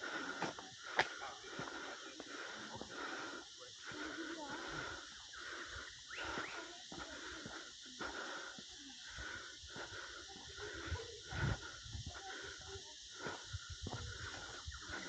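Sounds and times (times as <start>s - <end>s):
footsteps on forest trail: 0.0s - 15.0s
forest ambience hiss: 0.0s - 15.0s.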